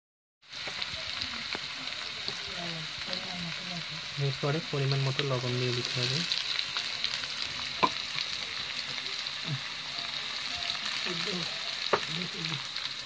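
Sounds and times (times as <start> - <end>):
potato slices sizzling in oil: 0.4 - 13.0.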